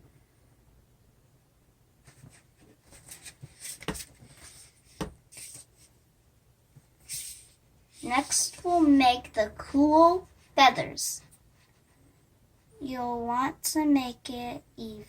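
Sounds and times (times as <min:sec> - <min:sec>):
pencil strokes scratching on paper: 0:02.0 - 0:06.0, 0:06.8 - 0:09.0
sharp taps on paper: 0:05.0 - 0:05.2.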